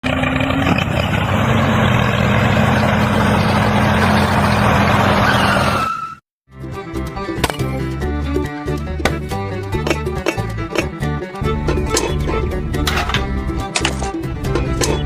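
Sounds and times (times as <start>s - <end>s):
engine humming: 0.0s - 5.8s, 9.5s - 15.0s.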